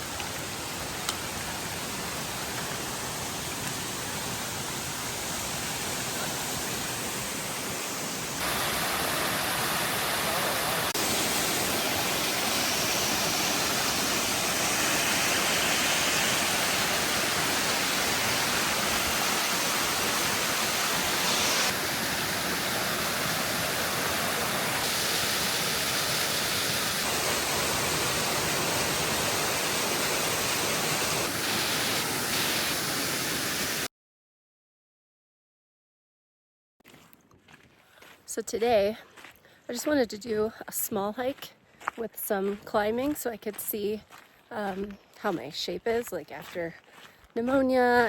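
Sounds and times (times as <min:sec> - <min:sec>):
waterfall roaring: 0:00.0 - 0:33.9.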